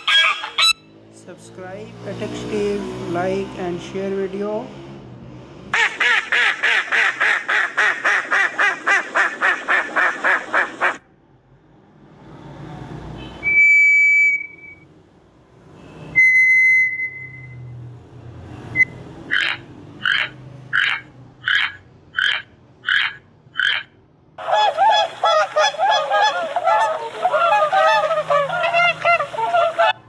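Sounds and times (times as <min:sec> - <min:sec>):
duck quacking fast: 0:00.0 - 0:00.8, 0:05.8 - 0:11.0, 0:19.3 - 0:29.7
toucan croaking calls: 0:00.0 - 0:00.9, 0:18.8 - 0:25.9
thrush long whistles: 0:13.4 - 0:14.9, 0:16.1 - 0:17.7.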